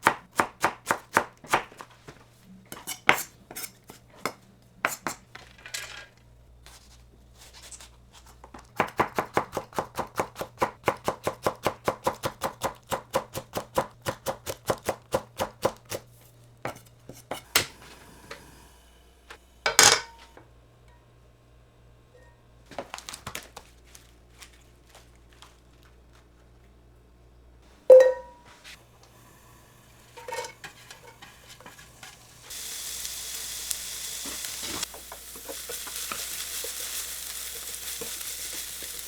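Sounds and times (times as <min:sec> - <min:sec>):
knife chopping on cutting board: 0:00.0 - 0:01.8, 0:08.8 - 0:16.0.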